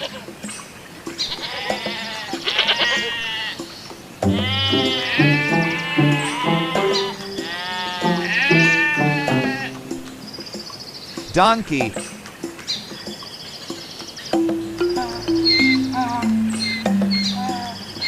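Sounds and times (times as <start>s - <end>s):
light background music: 0.0s - 18.0s
goats bleating: 1.3s - 3.6s, 4.3s - 9.8s.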